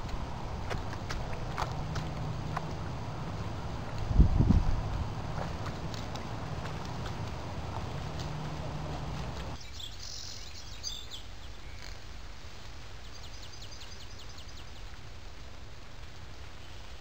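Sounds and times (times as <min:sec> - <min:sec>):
faint low hum: 0:00.0 - 0:09.6
bird chirping: 0:05.9 - 0:12.0.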